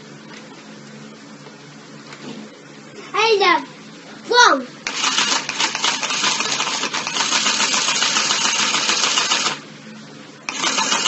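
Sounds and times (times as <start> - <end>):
toy sewing machine clattering: 4.9 - 9.6, 10.5 - 11.0.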